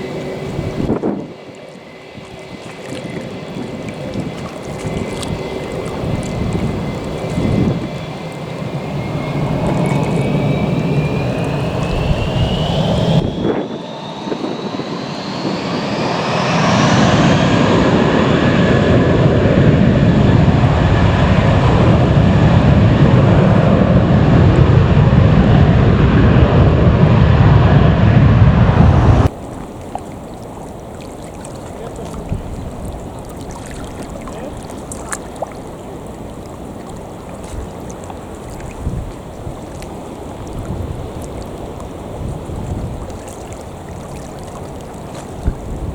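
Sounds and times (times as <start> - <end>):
lapping water: 0.0 - 13.2, 29.2 - 45.9
jet engines at takeoff thrust: 0.0 - 45.9
wind: 0.0 - 45.9.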